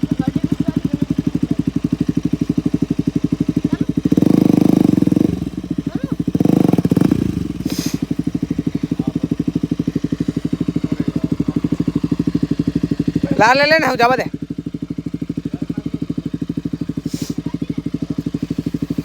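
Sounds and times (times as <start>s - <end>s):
motorcycle engine revving: 0.0s - 19.0s
short hiss: 7.6s - 8.2s, 17.0s - 17.4s.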